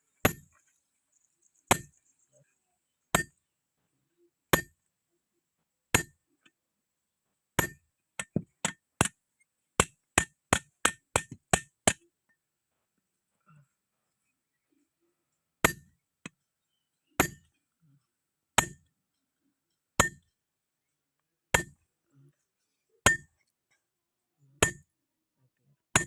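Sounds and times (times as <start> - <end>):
hammer striking metal on anvil: 17.2 - 17.4, 23.1 - 23.3.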